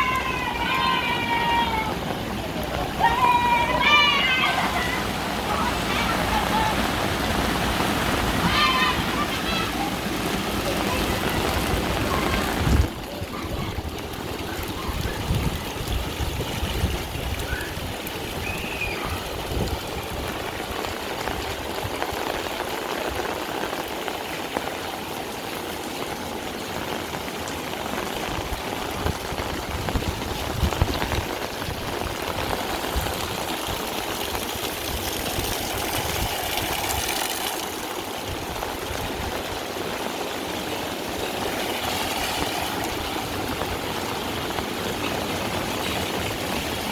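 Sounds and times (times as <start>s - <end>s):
heavy rain falling: 0.0s - 46.9s
water streaming and pouring: 0.0s - 46.9s.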